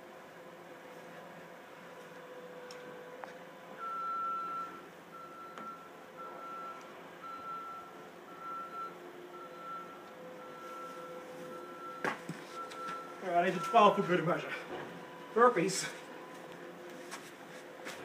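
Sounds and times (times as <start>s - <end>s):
truck reversing alarm beeping: 3.7s - 16.8s.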